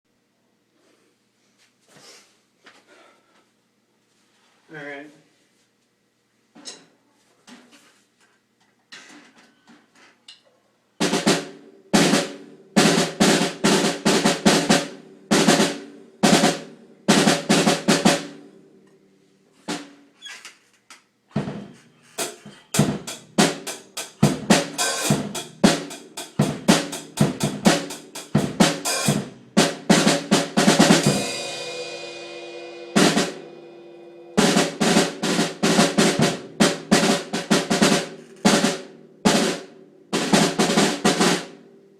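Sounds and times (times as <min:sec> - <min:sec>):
damped snare drum rolls: 0:11.0 - 0:18.4, 0:19.7 - 0:20.0, 0:21.3 - 0:41.6.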